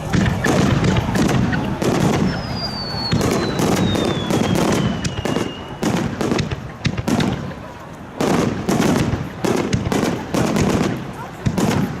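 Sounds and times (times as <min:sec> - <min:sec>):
fireworks booms: 0:00.0 - 0:12.0
fireworks crackling: 0:00.0 - 0:12.0
falling firework whistle: 0:00.2 - 0:06.2.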